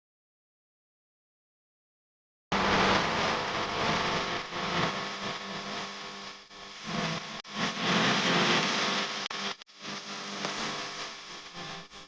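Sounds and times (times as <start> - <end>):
electric fan motor whirring: 6.8 - 11.7.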